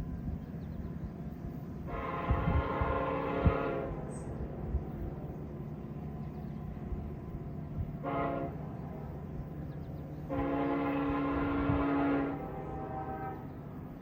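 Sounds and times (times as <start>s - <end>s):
train rumbling past: 0.0s - 14.0s
locomotive horn blasts: 1.9s - 4.2s, 8.0s - 8.8s, 10.2s - 13.7s.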